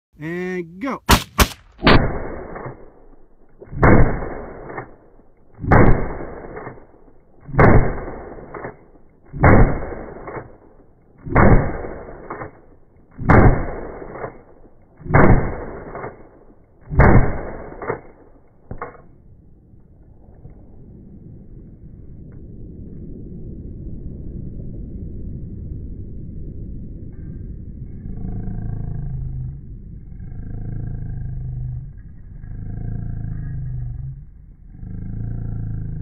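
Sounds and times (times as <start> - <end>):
smaller shorter report: 0.1 - 1.4
rifle shots: 1.1 - 19.0.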